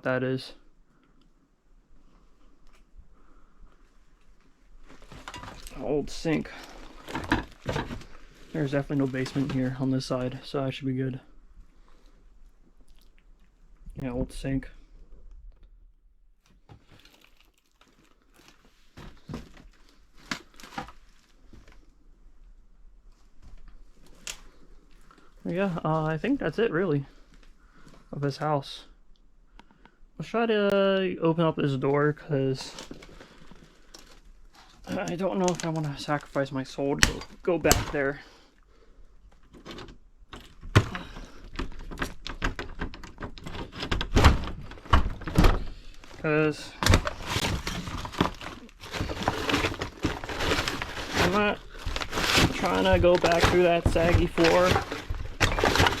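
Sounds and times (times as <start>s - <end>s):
crinkling and crunching of debris: 2.0s - 15.7s, 16.4s - 28.1s, 31.7s - 56.0s
jammed wooden door rattling: 40.4s - 45.8s.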